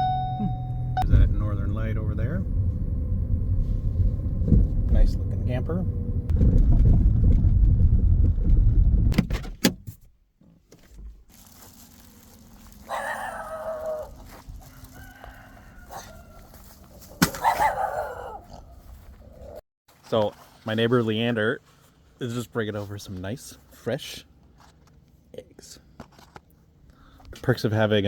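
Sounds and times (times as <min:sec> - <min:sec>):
loud low rumble: 0:00.0 - 0:09.2
rooster crowing: 0:13.3 - 0:16.9.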